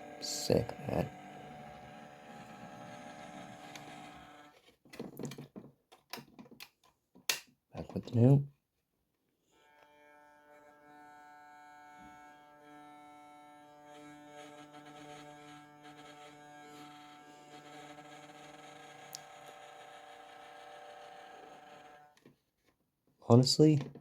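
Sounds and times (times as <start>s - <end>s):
model train motor humming: 0.0s - 4.6s, 11.3s - 22.2s.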